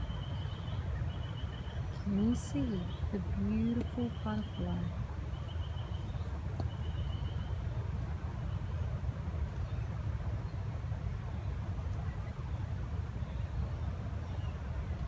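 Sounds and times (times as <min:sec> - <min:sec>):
faint high insect call: 0:00.0 - 0:07.5.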